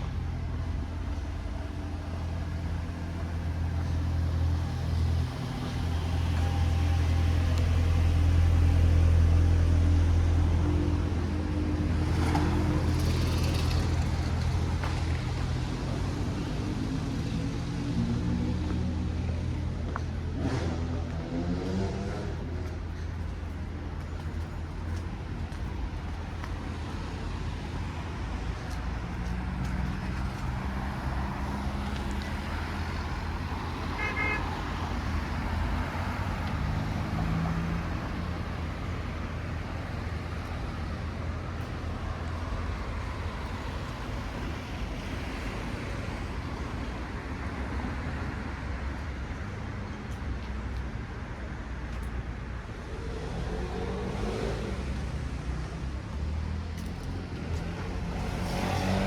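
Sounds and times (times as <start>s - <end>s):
car engines passing: 0.0s - 59.0s
low traffic rumble: 0.0s - 59.0s
car horn toot: 34.0s - 34.6s.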